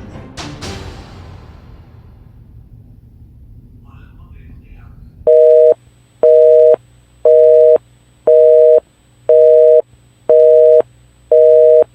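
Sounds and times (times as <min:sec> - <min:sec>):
telephone busy signal beeps: 0:05.3 - 0:11.9.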